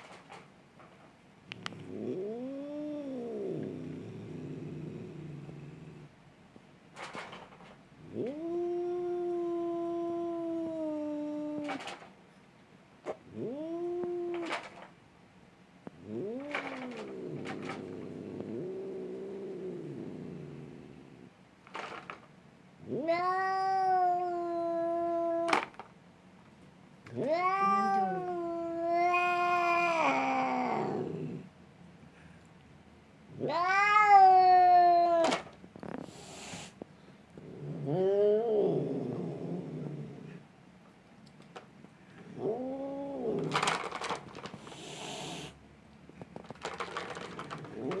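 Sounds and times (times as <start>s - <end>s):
cat growling and yowling: 1.6s - 6.1s, 8.0s - 12.0s, 13.1s - 14.8s, 16.0s - 21.1s, 22.8s - 25.8s, 27.1s - 31.5s, 33.3s - 36.6s, 37.4s - 40.4s, 42.2s - 45.6s, 46.8s - 48.0s
cat yowling: 22.9s - 25.6s, 27.2s - 31.2s, 33.4s - 35.4s.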